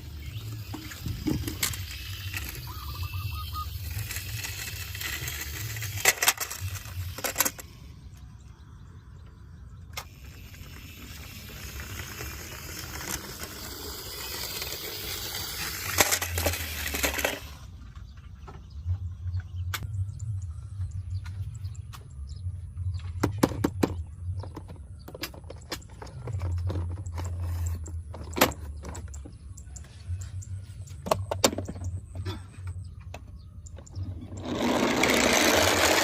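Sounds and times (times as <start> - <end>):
metal toys clicking and clinking: 0.5 - 7.8, 10.0 - 17.6.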